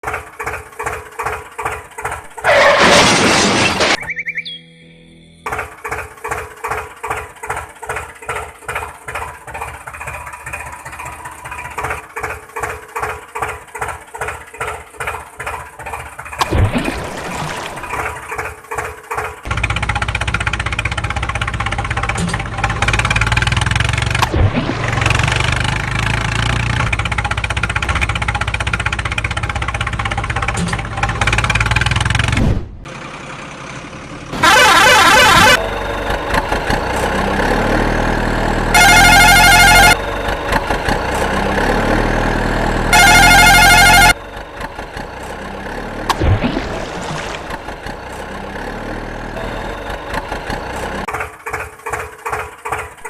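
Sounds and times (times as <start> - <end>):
truck engine running: 0.0 - 4.6, 5.2 - 53.0
loud horn blasts: 34.4 - 35.6, 38.6 - 40.0, 42.8 - 44.2.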